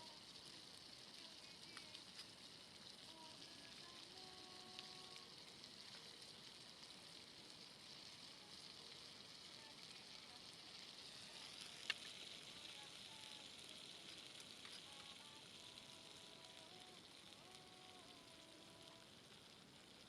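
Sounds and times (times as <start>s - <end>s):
food sizzling in a pan: 0.0s - 20.0s
small clicks: 11.6s - 12.2s, 14.0s - 15.4s.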